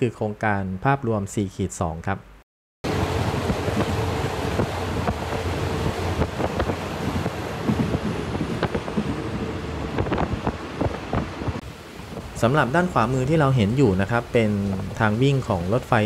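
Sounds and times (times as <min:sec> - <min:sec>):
train rumbling: 0:02.9 - 0:11.6
wind buffeting microphone: 0:02.9 - 0:16.0.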